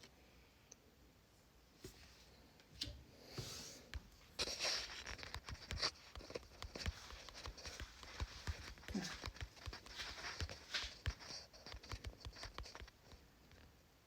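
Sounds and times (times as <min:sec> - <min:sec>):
cards rustling: 0:04.4 - 0:12.9.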